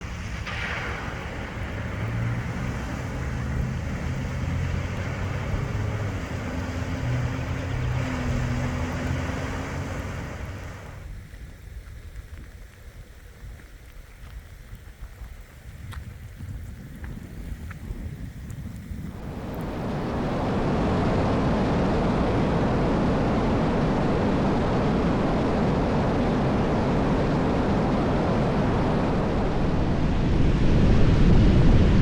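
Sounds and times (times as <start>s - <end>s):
loud steady rush of noise: 0.0s - 11.2s, 19.1s - 32.0s
vehicle engine humming: 0.0s - 30.4s.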